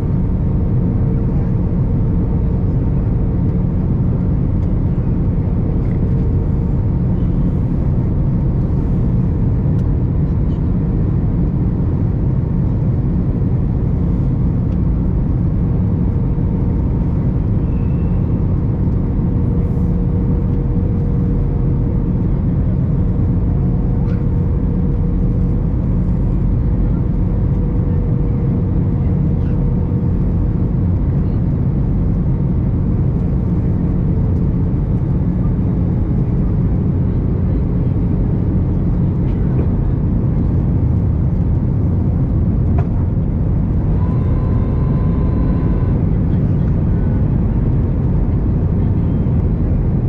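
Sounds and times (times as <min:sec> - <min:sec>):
airliner cabin rumble: 0:00.0 - 0:50.0.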